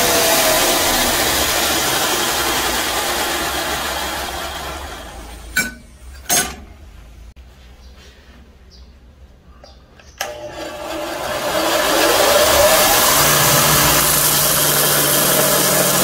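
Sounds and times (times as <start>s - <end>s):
sanding belt running: 0.0s - 5.6s, 10.2s - 16.0s.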